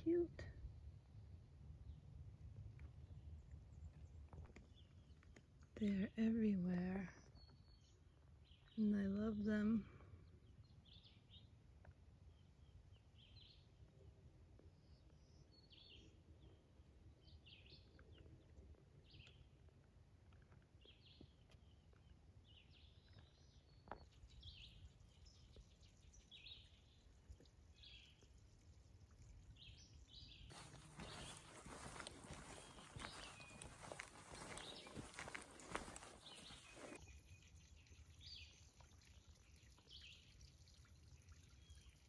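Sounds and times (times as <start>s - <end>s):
bird chirping: 29.5s - 42.0s.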